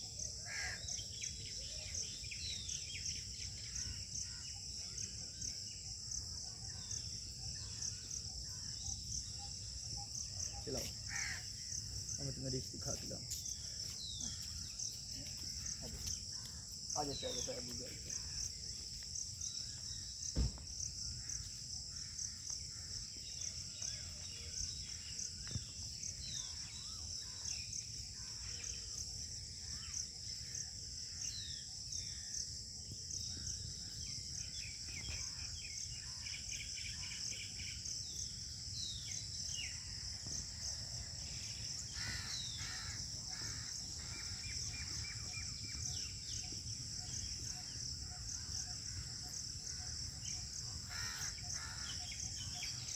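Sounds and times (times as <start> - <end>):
insects chirring: 0.0 - 52.9
thump: 20.3 - 20.8.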